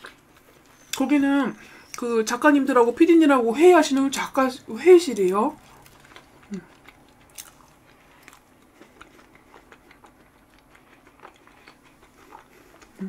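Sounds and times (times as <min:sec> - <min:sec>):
chewing with wet mouth clicks: 0:05.6 - 0:13.0.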